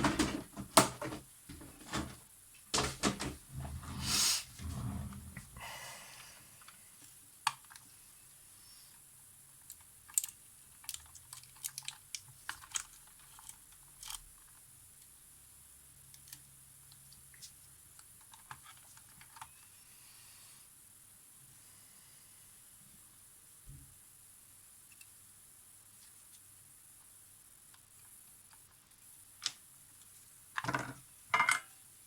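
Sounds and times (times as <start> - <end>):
faint hum: 2.8 - 9.5
small tools clicking and tapping: 9.6 - 14.6.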